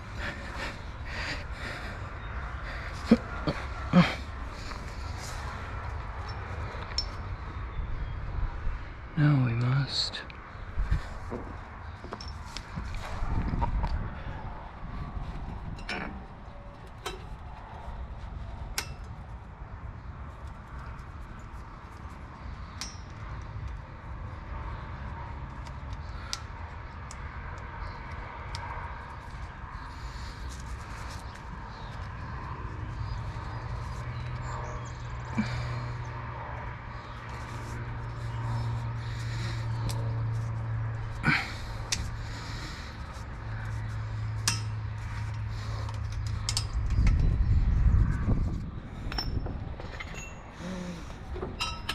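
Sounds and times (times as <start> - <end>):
steady low rumble: 0.0 - 51.3
steady low hum: 0.0 - 51.9
metallic clinks of tools: 49.1 - 51.0.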